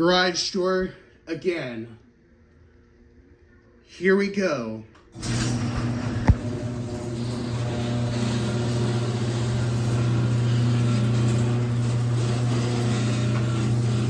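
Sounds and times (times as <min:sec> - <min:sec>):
garage door opener humming: 0:05.1 - 0:14.0.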